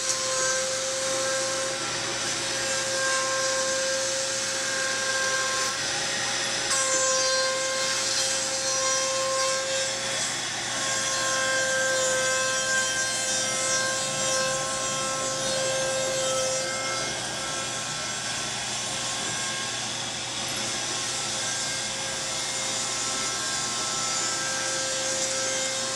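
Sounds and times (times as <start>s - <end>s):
router spindle whining: 7.6s - 25.9s.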